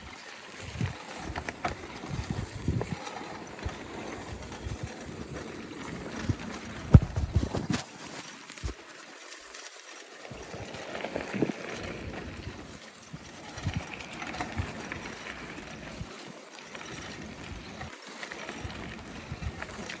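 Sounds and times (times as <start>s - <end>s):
bicycle rattling over bumps: 0.0s - 20.0s
bicycle tyres hissing on dirt: 0.0s - 20.0s.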